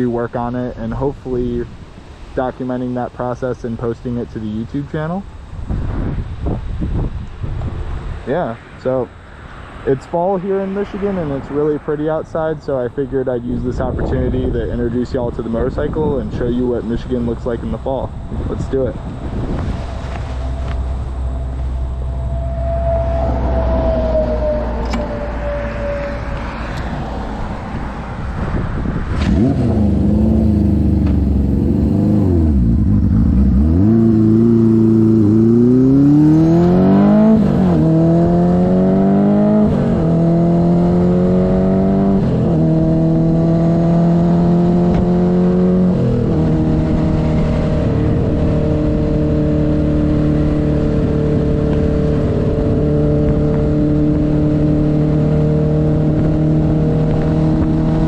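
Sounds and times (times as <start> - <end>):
motorcycle engine accelerating: 17.6 - 58.0.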